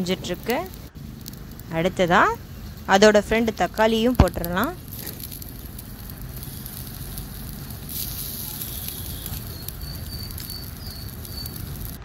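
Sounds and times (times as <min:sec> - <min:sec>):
onion and tomato frying: 0:00.0 - 0:12.0
faint bird chirps: 0:08.4 - 0:12.0.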